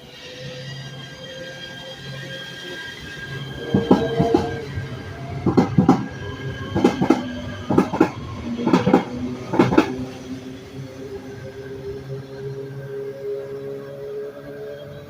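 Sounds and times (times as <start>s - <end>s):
train steady hum: 0.0s - 15.0s
train wheels clacking over rail joints: 3.6s - 4.6s, 5.4s - 10.1s.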